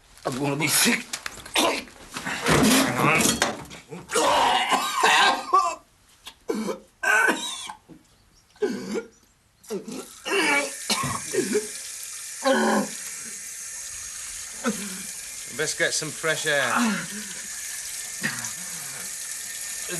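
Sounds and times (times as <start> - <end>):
man retching and coughing: 1.5 - 3.4, 4.0 - 7.9, 8.6 - 11.7, 18.2 - 19.0
tap running: 10.8 - 19.9
man speaking: 15.5 - 17.1.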